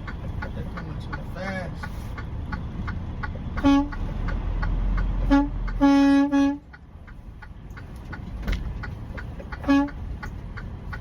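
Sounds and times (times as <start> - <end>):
low vehicle rumble: 0.0 - 11.0
steady ticking: 0.0 - 11.0
vehicle horn honking: 3.6 - 3.9, 5.3 - 6.6, 9.6 - 10.0.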